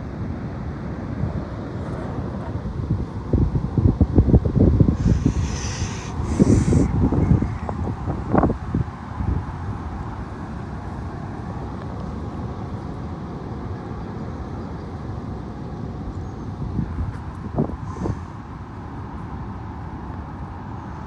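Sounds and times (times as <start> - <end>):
wind buffeting microphone: 1.2 - 10.0
high wind blowing: 2.6 - 10.2.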